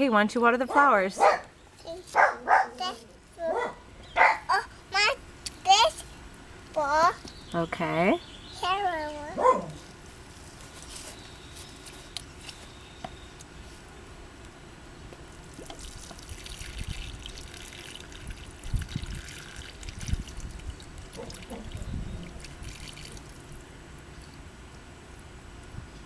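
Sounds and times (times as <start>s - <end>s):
water pouring from watering can: 15.4s - 24.5s.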